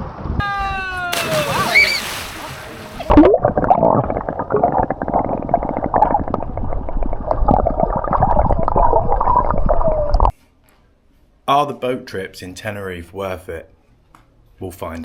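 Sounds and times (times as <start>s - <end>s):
underwater gurgling and bubbling: 3.0s - 10.3s.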